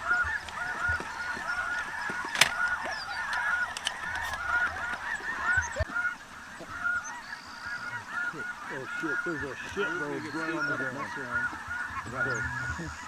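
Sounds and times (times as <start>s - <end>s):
sharp crack: 0.0s - 5.6s
geese honking: 0.0s - 13.0s.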